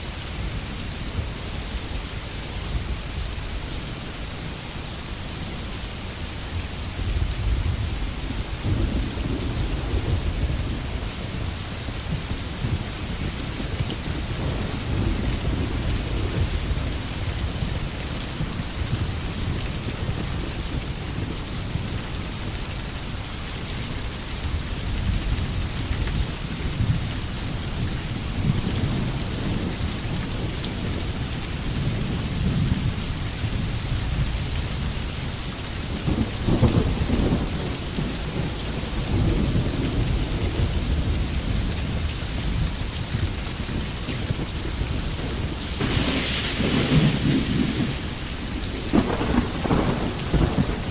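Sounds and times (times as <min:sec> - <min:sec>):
rain falling through trees: 0:00.0 - 0:50.9
rolling thunder: 0:07.0 - 0:21.3, 0:36.0 - 0:50.9.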